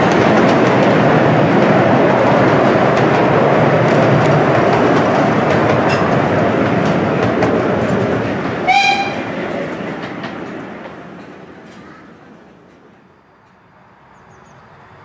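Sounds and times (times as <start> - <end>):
railway carriages rolling on track: 0.0 - 15.0
steam locomotive whistle: 8.6 - 9.3.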